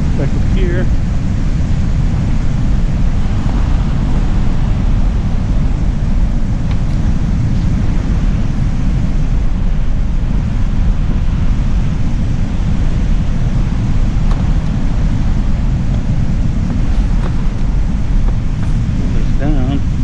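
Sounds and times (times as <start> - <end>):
beach surf washing: 0.0 - 20.0
wind buffeting microphone: 0.0 - 20.0.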